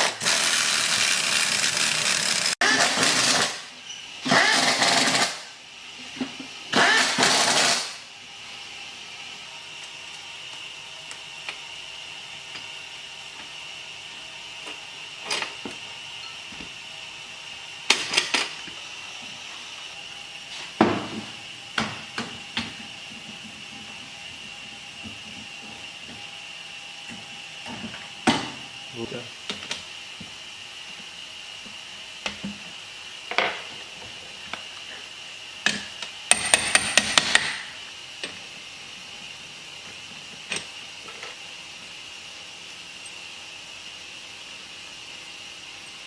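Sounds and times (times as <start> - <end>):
power tool bursts: 0.0 - 5.5, 6.7 - 8.1.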